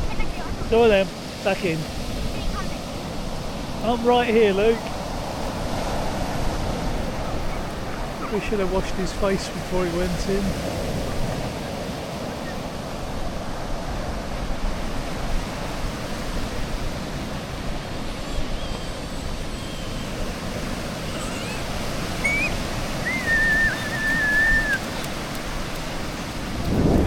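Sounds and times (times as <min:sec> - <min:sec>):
sea waves washing on shore: 0:00.0 - 0:27.0
high whistle-like call: 0:22.2 - 0:24.9.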